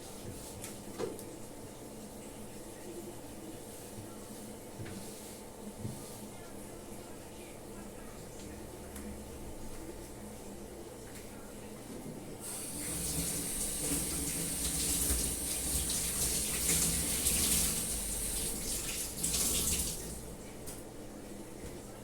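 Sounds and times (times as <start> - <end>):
water running from a tap: 12.4 - 20.4.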